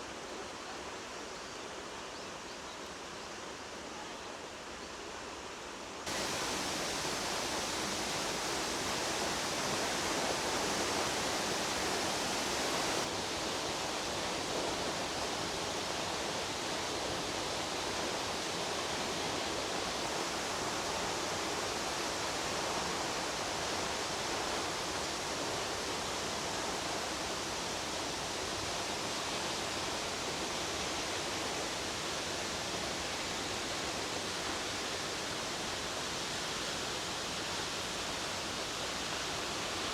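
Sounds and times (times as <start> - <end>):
waterfall pouring: 6.1 - 13.1.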